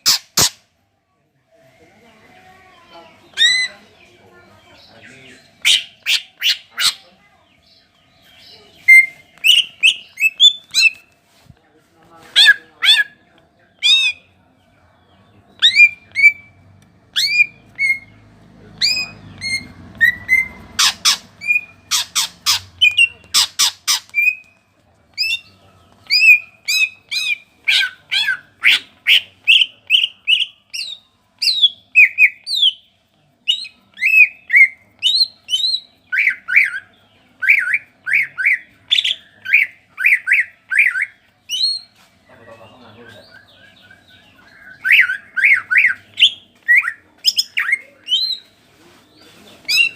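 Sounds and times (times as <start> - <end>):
bird singing whistled notes: 7.6 - 11.1, 15.5 - 16.6, 17.2 - 18.2, 18.8 - 24.6, 33.4 - 48.5.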